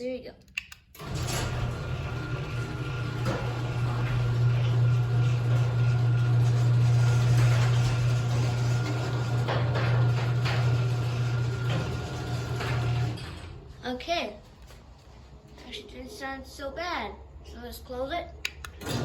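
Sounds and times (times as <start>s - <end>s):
garage door opener motor hum: 1.0s - 13.8s, 18.8s - 19.0s.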